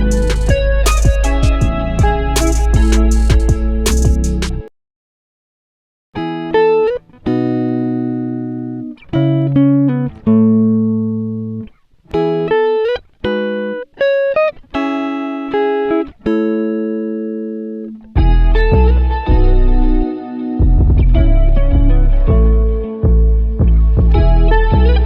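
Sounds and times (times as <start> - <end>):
plucked-string melody: 0.0 - 4.7, 14.8 - 25.0.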